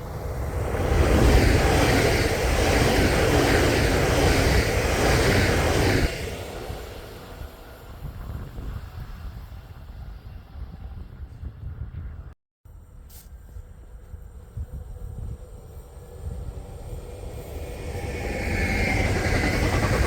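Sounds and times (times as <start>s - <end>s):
train wheels roaring on rails: 0.0s - 12.2s, 13.6s - 20.0s.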